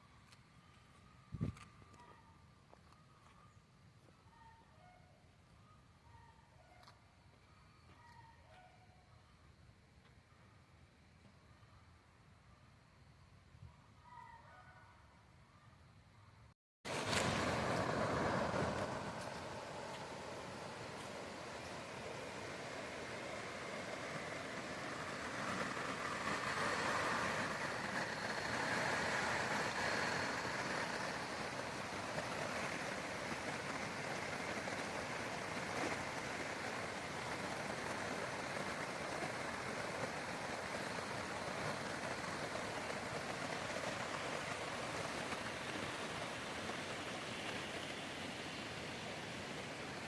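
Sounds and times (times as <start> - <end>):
creek water flowing: 16.9 - 50.0.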